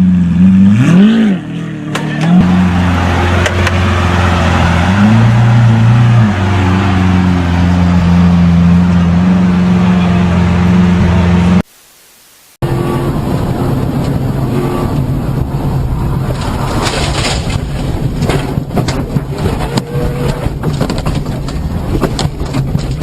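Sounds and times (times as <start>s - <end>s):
car engine running: 12.6s - 23.0s.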